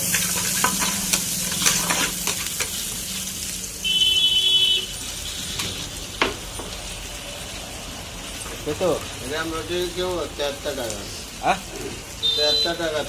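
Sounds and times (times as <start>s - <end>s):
spatula scraping metal pan: 0.0s - 2.8s
food sizzling in a pan: 0.0s - 13.0s.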